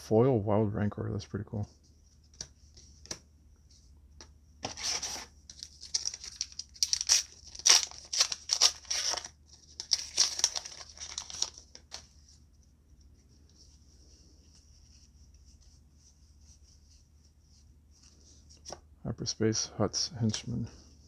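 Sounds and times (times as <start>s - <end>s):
foil wrapper tearing and crinkling: 4.7s - 12.1s.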